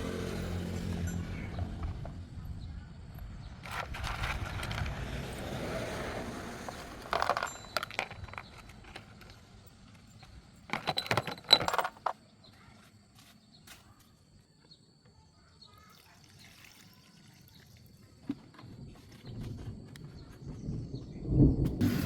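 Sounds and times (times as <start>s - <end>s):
metal parts and tools clinking: 6.7s - 12.2s.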